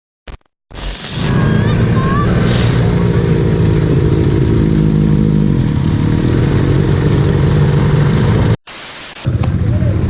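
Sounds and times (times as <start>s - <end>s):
motorcycle engine running: 0.8s - 8.6s, 9.3s - 10.0s.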